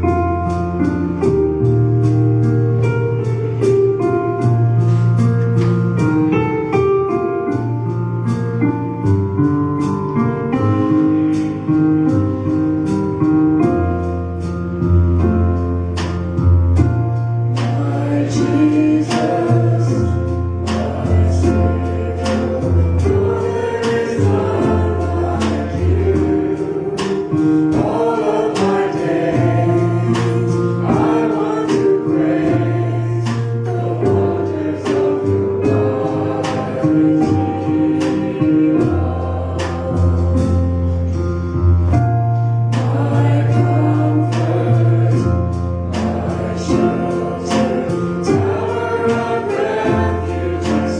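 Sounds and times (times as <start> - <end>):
bass notes: 0.0 - 50.9
choir singing gospel song: 10.1 - 50.9
drum beat: 13.7 - 42.2, 42.8 - 50.9.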